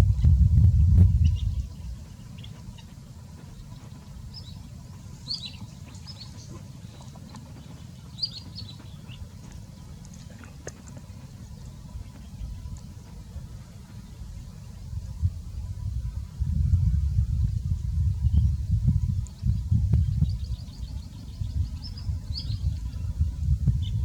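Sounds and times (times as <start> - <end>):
low rumble: 0.0 - 24.0
small bird chirping: 0.2 - 10.4, 18.3 - 24.0.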